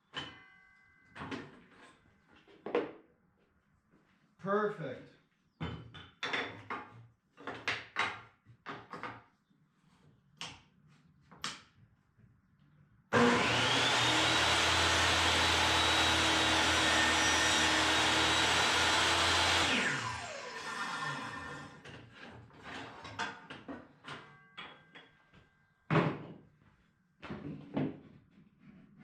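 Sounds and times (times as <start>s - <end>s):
electric table saw running: 13.1s - 21.8s.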